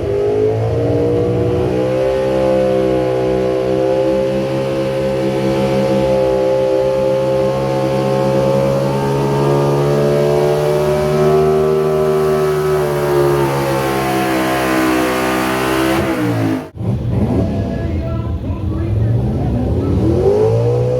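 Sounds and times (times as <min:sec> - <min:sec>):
engine running at high revs: 0:00.0 - 0:20.9.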